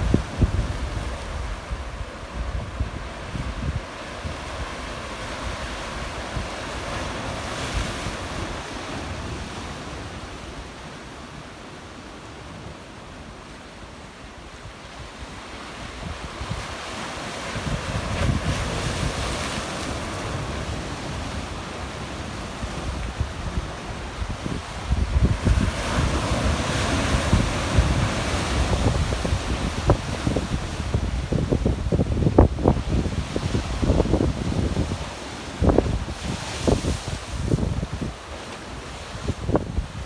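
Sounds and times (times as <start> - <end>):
wind buffeting microphone: 0.0 - 6.8, 17.5 - 19.5, 22.6 - 38.2, 38.9 - 40.0.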